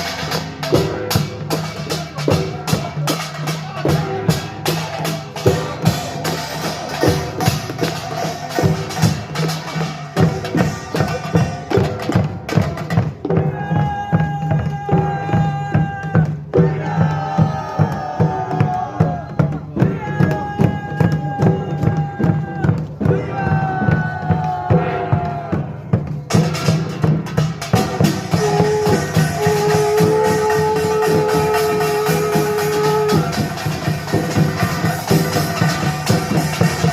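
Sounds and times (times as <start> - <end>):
drums beating: 0.0 - 36.9.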